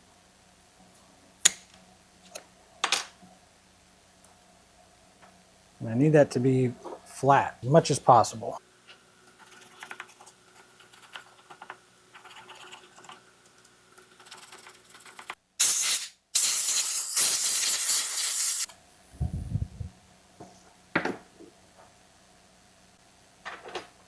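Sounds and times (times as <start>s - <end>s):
light scraping and ticking: 8.9s - 15.4s
pressurised spray hissing: 15.6s - 18.7s.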